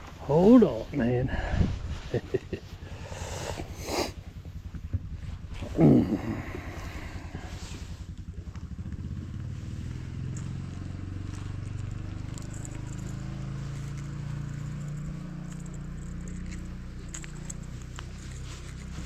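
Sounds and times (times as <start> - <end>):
light clicks and rustles: 10.2 - 19.0.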